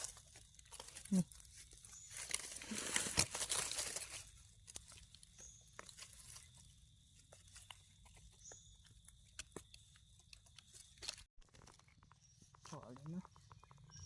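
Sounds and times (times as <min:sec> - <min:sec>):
faint crackles and clicks: 0:07.2 - 0:14.0.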